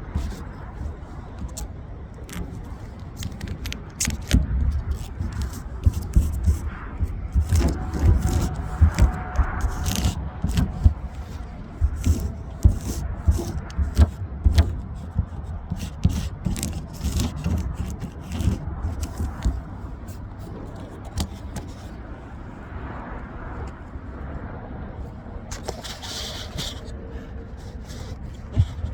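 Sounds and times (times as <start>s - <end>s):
steady low rumble: 0.0s - 25.9s
plastic film rustling: 1.4s - 14.9s.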